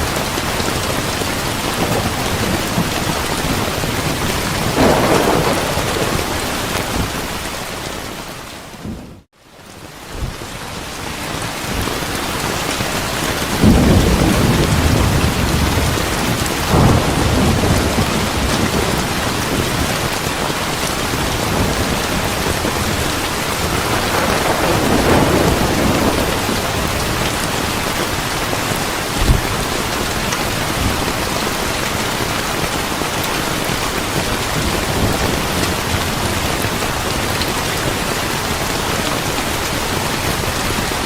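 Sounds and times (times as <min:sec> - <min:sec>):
heavy rain: 0:00.0 - 0:41.0
thunder rolling: 0:00.2 - 0:09.3, 0:13.3 - 0:20.2, 0:21.0 - 0:31.2.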